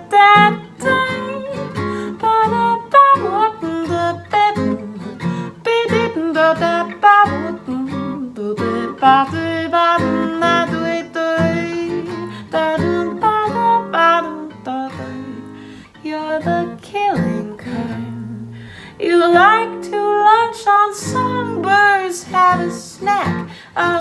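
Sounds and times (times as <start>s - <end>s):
jazz guitar playing: 0.0s - 15.6s.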